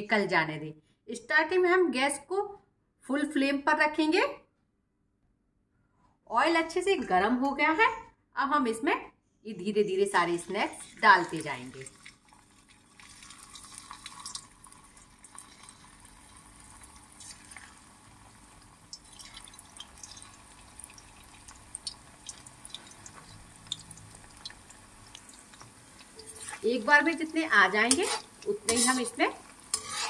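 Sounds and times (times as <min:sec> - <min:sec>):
batter deep-frying in oil: 0:10.0 - 0:30.0
small crackles and pops of oil: 0:12.1 - 0:17.8, 0:18.5 - 0:26.6.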